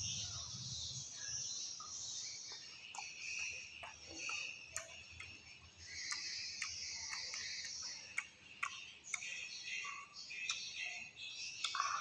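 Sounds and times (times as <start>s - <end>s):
chewing crunchy fruit: 2.2s - 9.5s
wet mouth clicks: 2.5s - 9.4s, 11.6s - 11.8s.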